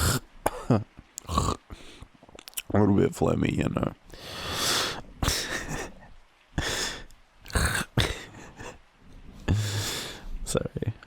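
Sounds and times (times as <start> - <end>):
man sniffing and snorting: 9.4 - 10.2.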